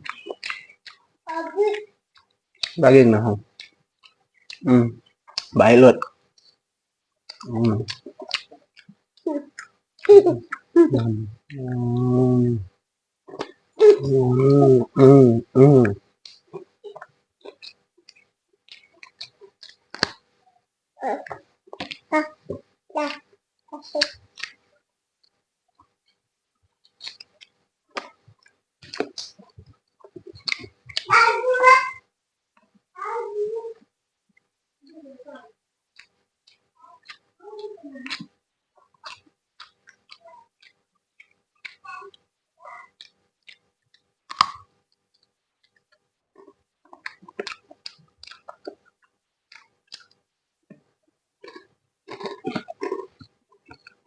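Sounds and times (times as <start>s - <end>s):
chewing mouth clicks: 0.0s - 1.1s, 1.7s - 2.8s, 3.5s - 6.6s, 7.3s - 12.0s, 15.8s - 20.2s, 21.2s - 26.2s, 26.8s - 31.2s, 35.9s - 54.0s.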